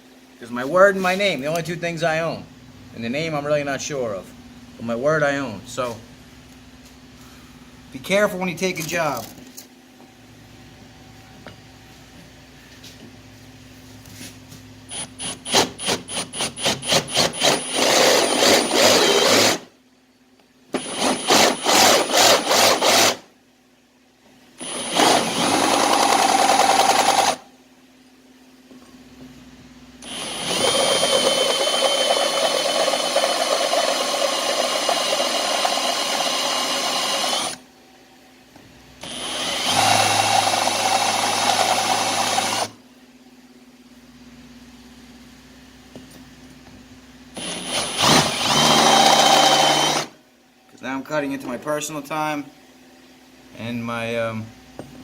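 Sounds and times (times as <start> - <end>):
electric drill boring into metal: 14.9 - 19.7, 20.8 - 23.3, 24.6 - 27.4, 30.0 - 37.6, 39.0 - 42.8, 47.4 - 50.1.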